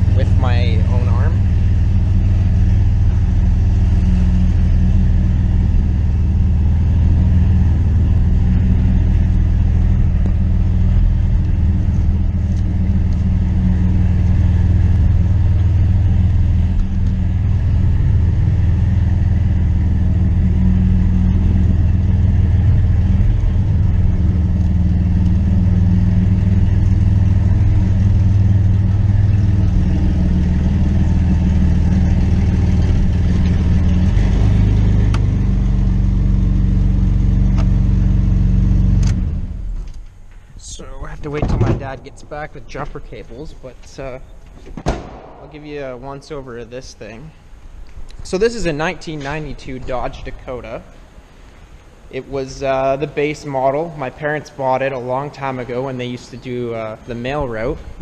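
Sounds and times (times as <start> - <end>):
car engine running: 0.0 - 53.8.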